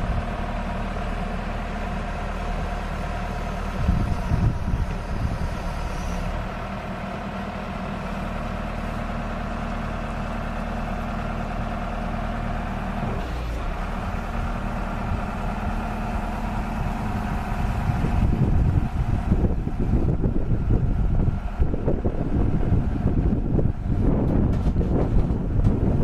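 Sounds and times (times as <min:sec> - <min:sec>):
diesel engine idling: 0:00.0 - 0:26.0
wind buffeting microphone: 0:03.4 - 0:06.5, 0:13.8 - 0:26.0.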